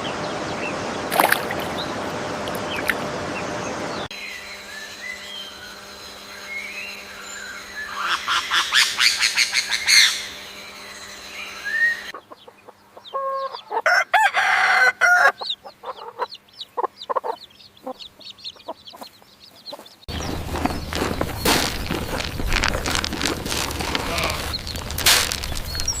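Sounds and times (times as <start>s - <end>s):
chickens clucking: 12.1s - 26.0s
chicken drawn-out pitched call: 13.2s - 16.0s.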